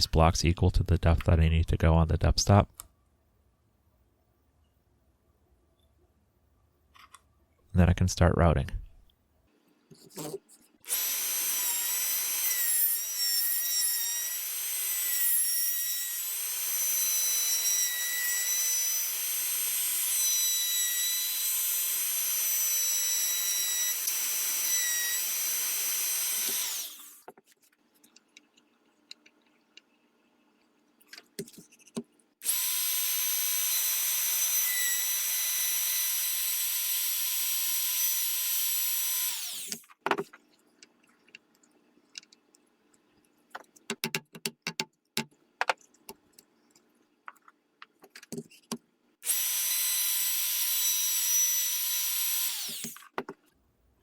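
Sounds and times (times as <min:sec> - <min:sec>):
electric router whining: 0:10.9 - 0:12.7, 0:16.0 - 0:27.1, 0:49.2 - 0:53.0.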